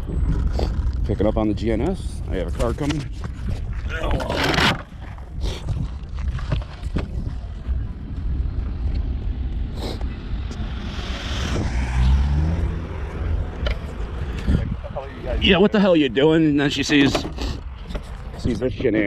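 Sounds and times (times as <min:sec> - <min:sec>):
wind rumble on microphone: 0:00.0 - 0:15.7
car driving past: 0:10.0 - 0:14.8.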